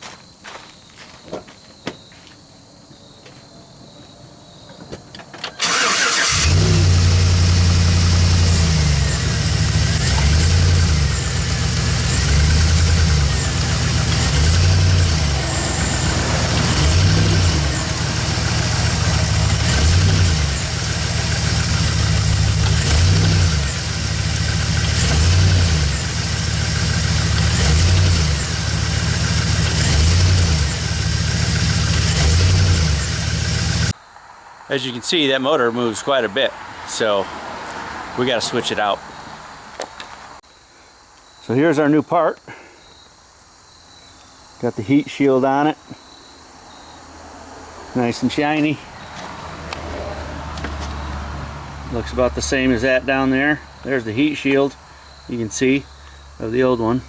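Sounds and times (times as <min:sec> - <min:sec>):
truck engine starting and revving: 0:05.5 - 0:34.0, 0:47.8 - 0:57.0.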